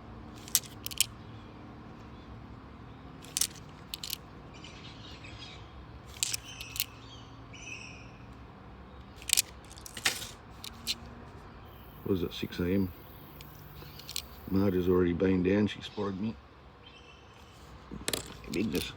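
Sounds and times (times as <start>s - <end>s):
coins clicking together: 0.4s - 1.1s, 3.2s - 4.2s, 6.1s - 6.9s, 9.2s - 11.0s, 11.8s - 15.0s, 18.0s - 18.9s
faint birds calling: 0.5s - 9.8s, 10.6s - 15.0s.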